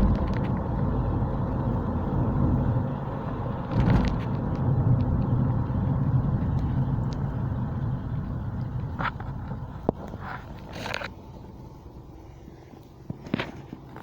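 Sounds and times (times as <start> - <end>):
car engine rumble: 0.0 - 14.0
road noise: 0.0 - 14.0
light ticks: 6.4 - 7.3.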